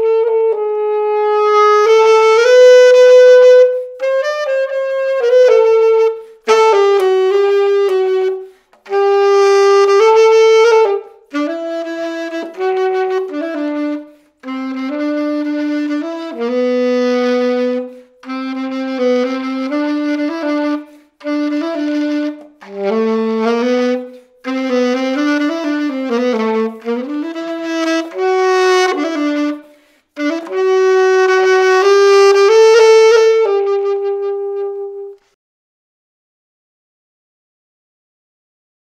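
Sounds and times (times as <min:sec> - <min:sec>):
solo alto saxophone: 0:00.0 - 0:35.4
player taking breaths: 0:29.6 - 0:30.2.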